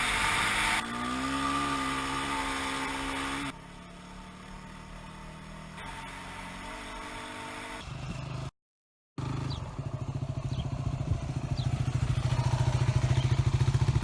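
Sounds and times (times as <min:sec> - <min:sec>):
motorcycle engine running: 0:00.0 - 0:08.5, 0:09.2 - 0:14.0
motorcycle engine idling: 0:09.2 - 0:14.0.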